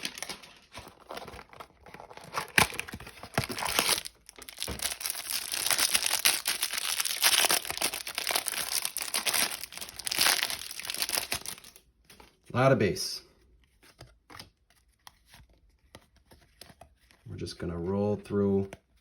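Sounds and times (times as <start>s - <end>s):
card packaging tearing and crinkling: 0.0s - 11.8s.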